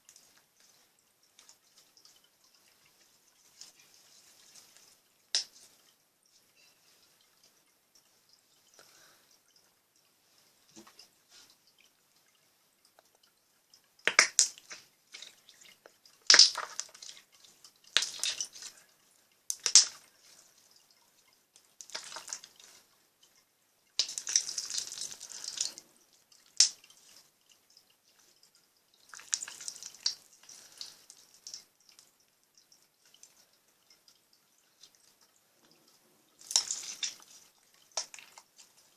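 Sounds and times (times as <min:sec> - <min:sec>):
slime bubbles popping and crackling: 0:14.0 - 0:18.8, 0:19.5 - 0:20.0, 0:21.8 - 0:22.6, 0:24.0 - 0:25.8, 0:26.5 - 0:26.9, 0:29.0 - 0:31.7, 0:36.4 - 0:38.7.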